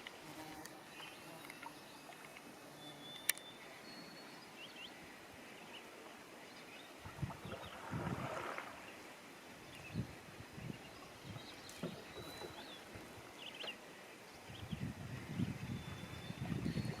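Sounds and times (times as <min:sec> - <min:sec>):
calm lake ambience: 0:00.0 - 0:17.0
canoe paddle strokes in water: 0:07.0 - 0:09.0, 0:11.6 - 0:13.8.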